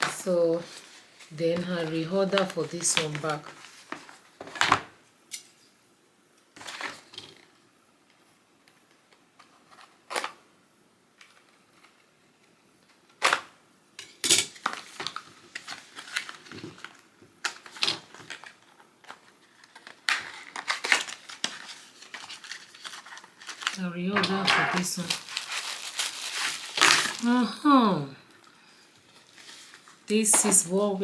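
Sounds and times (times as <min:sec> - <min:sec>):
packaging rustling: 0:00.0 - 0:04.9, 0:14.5 - 0:27.5, 0:28.4 - 0:30.6.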